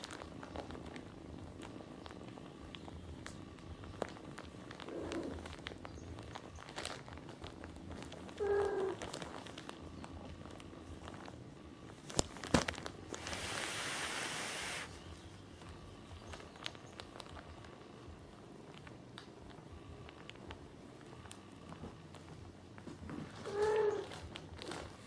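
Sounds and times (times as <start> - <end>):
steady hissing noise: 0.0 - 25.0
kitten mewing: 8.4 - 9.1, 23.1 - 24.3.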